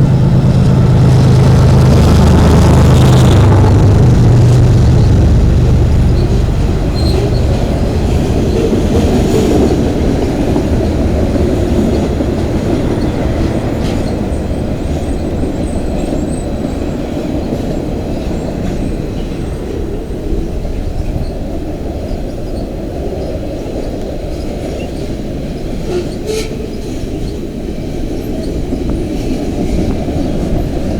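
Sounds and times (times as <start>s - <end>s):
freight train rumbling past: 0.0s - 30.9s
faint high wheel squeal: 4.8s - 9.7s.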